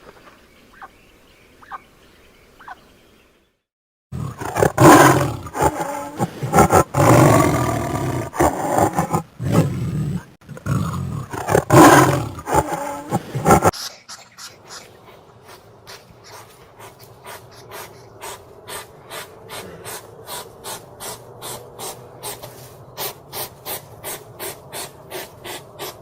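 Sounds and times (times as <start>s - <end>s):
big cat roaring: 4.1s - 13.7s.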